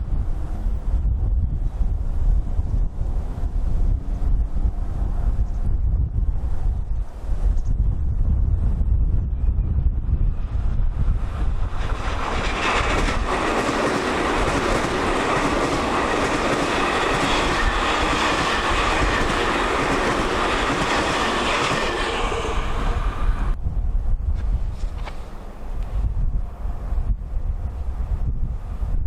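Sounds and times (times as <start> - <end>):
electric train passing: 0.0 - 7.4, 10.0 - 24.1
wind rumbling on microphone: 0.0 - 29.0.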